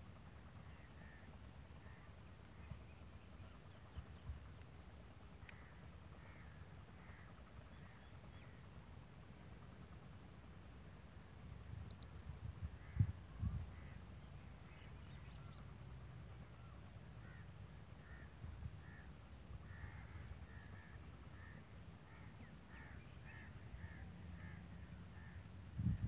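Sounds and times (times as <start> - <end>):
steady low rumble: 0.0 - 26.0
faint short bird calls: 0.7 - 2.1, 16.6 - 19.1, 19.7 - 25.5.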